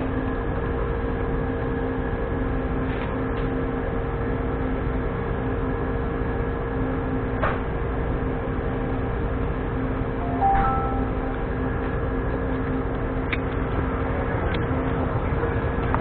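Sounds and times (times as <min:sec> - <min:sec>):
machine hum: 0:08.7 - 0:16.0.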